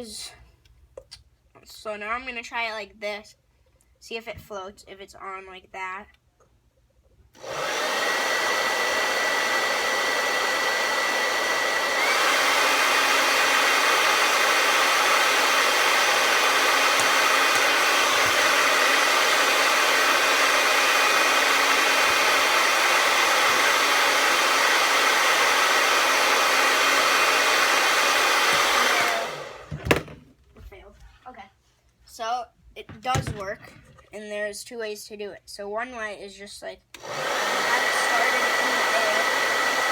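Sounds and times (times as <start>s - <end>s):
hair dryer blowing: 7.4s - 30.1s, 37.0s - 39.9s.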